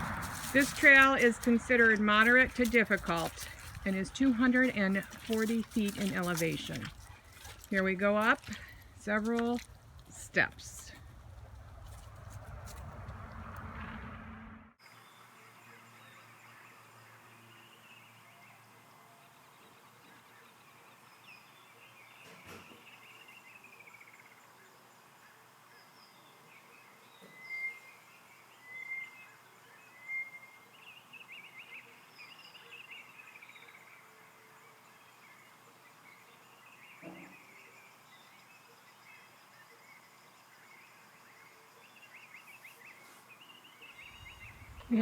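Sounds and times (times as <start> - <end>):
wild birds singing and calling: 14.9 - 45.0.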